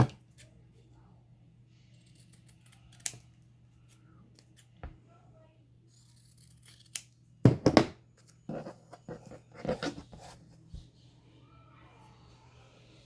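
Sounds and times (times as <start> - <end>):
sharp knocks on worktable: 7.5 - 8.0.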